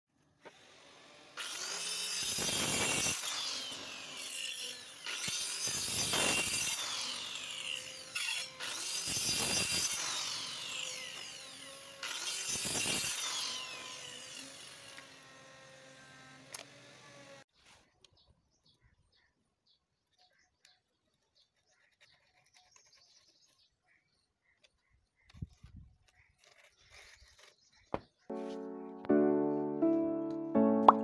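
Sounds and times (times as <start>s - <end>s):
electric saw cutting plywood: 0.2s - 17.5s.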